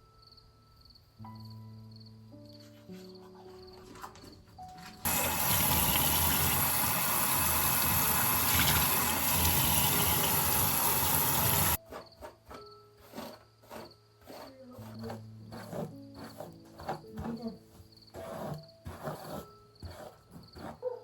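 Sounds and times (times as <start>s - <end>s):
soft background music: 0.0s - 8.3s, 9.0s - 21.0s
water rushing: 5.1s - 11.8s.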